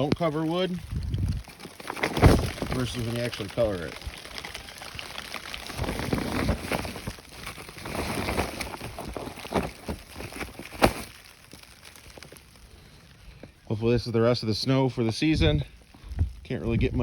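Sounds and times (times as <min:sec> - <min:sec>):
footsteps crunching through snow: 0:00.0 - 0:12.5.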